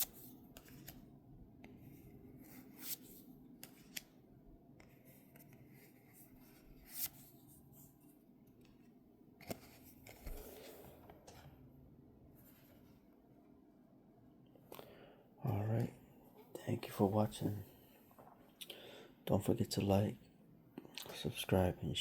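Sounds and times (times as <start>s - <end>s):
low room hum: 0.0s - 22.0s
trading cards swishing and rubbing: 1.9s - 4.1s, 4.9s - 8.0s.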